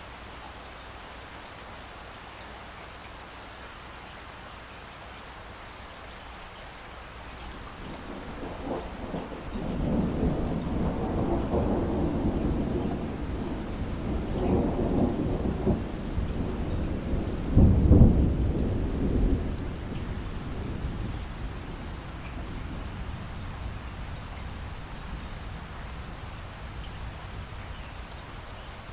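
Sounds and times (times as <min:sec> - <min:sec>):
steady rain: 0:00.0 - 0:28.9
thunder rumbling: 0:07.5 - 0:27.7.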